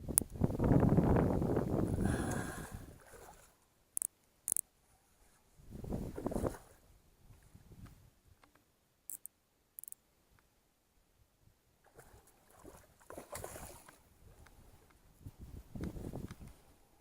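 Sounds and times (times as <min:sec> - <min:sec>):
high-pitched ticks: 0:09.1 - 0:10.0.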